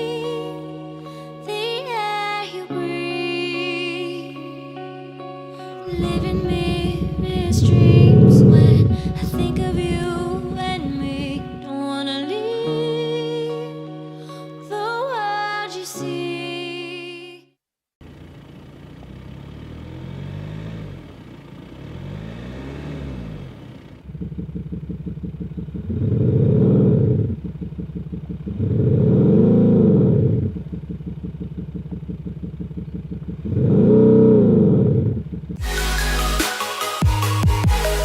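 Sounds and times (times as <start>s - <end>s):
music: 0.0s - 17.6s, 35.6s - 38.0s
synthesized engine revving: 5.9s - 11.6s, 18.9s - 38.0s.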